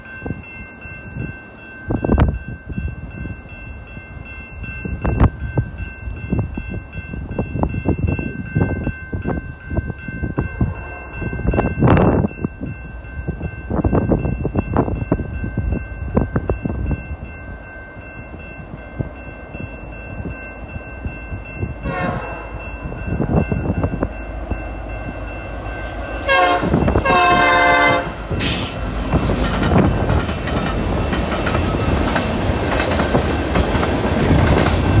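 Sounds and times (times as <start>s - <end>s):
high-pitched ringing: 0.0s - 28.5s
locomotive horn: 21.8s - 22.6s, 26.2s - 28.8s
train wheels clattering over rails: 26.8s - 35.0s.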